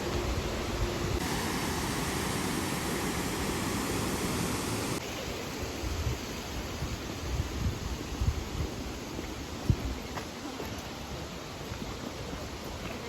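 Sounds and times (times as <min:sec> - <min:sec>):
waterfall roaring: 0:01.2 - 0:05.0.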